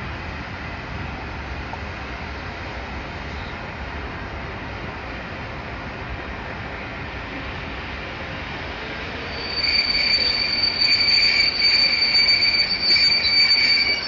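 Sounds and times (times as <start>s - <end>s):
low rumble of train: 0.0s - 14.0s
train wheels squealing: 8.8s - 14.0s.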